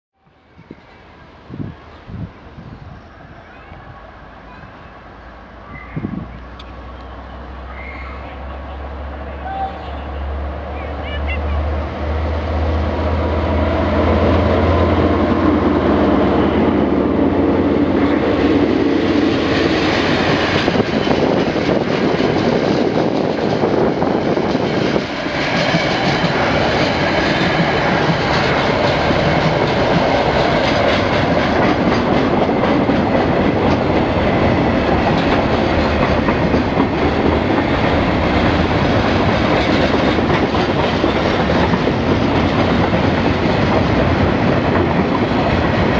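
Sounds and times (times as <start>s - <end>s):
locomotive engines humming: 0.9s - 45.9s
train wheels clacking on rails: 12.0s - 45.9s.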